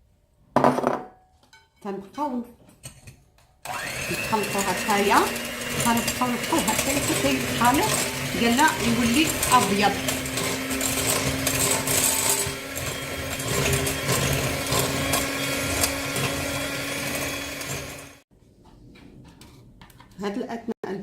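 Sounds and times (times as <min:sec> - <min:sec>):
electric hand mixer running: 0:03.6 - 0:18.2.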